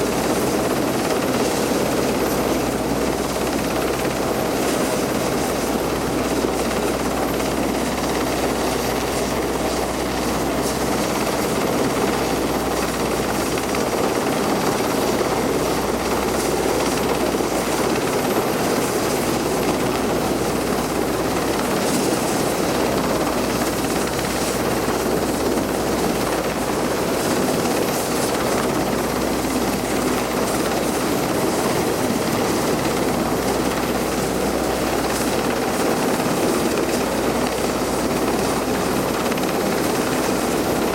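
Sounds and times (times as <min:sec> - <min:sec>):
helicopter rotor and engine: 0:00.0 - 0:40.9.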